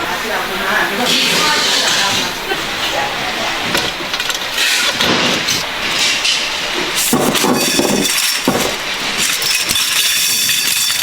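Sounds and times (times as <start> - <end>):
metal knocking and clanking: 3.7 - 11.0.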